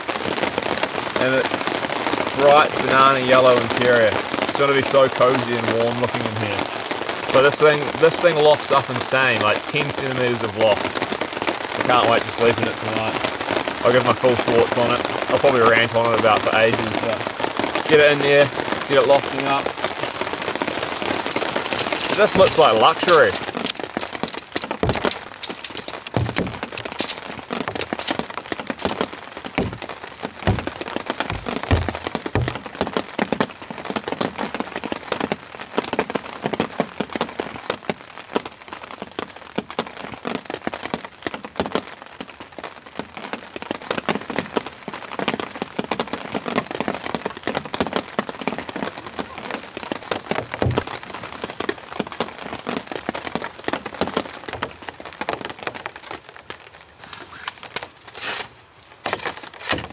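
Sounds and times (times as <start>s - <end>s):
heavy rain on a tarp: 0.0s - 59.9s
heavy low thuds: 24.4s - 25.3s, 26.0s - 28.0s, 29.6s - 32.8s.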